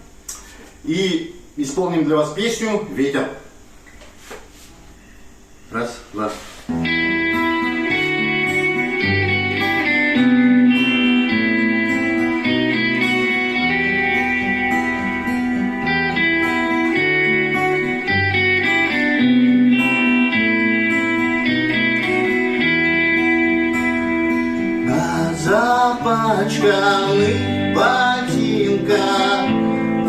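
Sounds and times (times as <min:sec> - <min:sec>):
electric lead guitar: 0:06.7 - 0:30.0.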